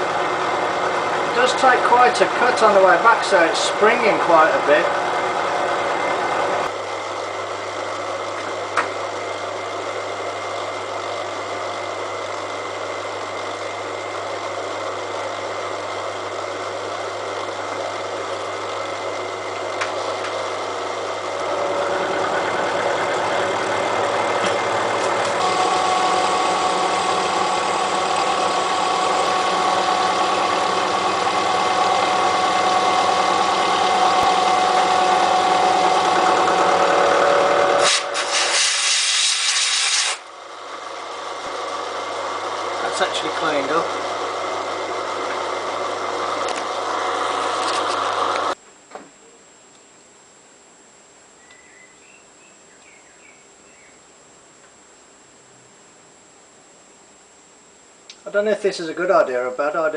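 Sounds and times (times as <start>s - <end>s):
milling machine cutting steel: 0.0s - 6.6s, 20.6s - 40.3s.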